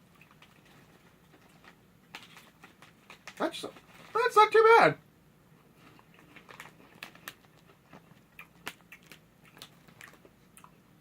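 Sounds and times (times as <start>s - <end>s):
person chewing crunchy snack: 5.8s - 10.8s.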